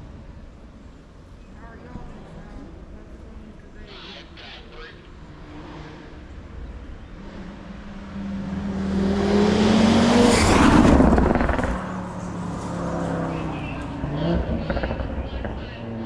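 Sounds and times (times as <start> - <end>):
race car engine accelerating: 5.2 - 16.0.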